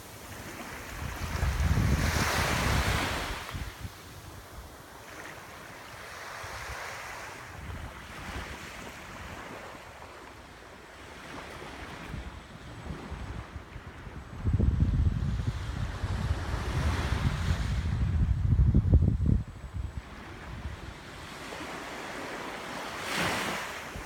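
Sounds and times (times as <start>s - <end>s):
wind buffeting microphone: 0.0s - 4.8s, 11.6s - 21.4s
waves breaking on beach: 0.0s - 13.7s, 20.0s - 24.0s.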